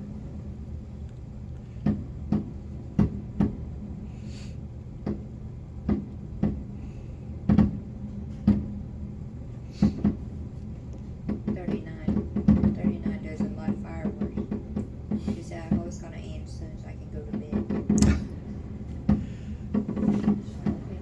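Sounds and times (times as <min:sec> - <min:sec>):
low steady hum: 0:00.0 - 0:21.0
fireworks booming: 0:17.6 - 0:21.0.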